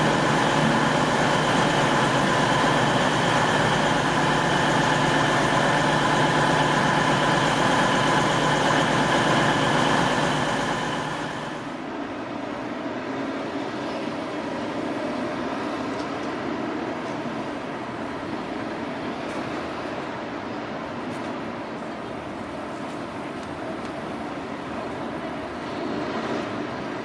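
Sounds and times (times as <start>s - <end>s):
diesel train engine droning: 0.0s - 13.2s.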